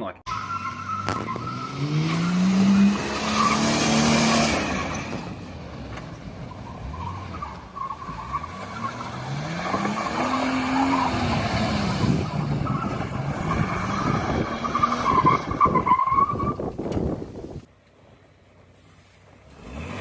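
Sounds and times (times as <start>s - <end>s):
car engine revving: 0.3s - 16.2s.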